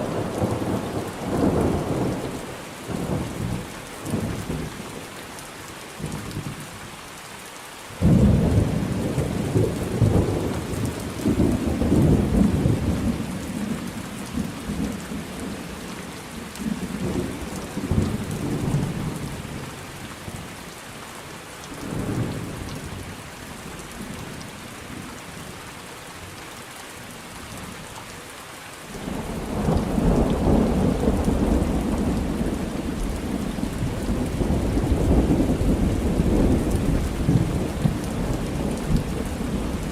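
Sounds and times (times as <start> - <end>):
heavy rain: 0.0 - 39.9
rolling thunder: 29.0 - 39.9.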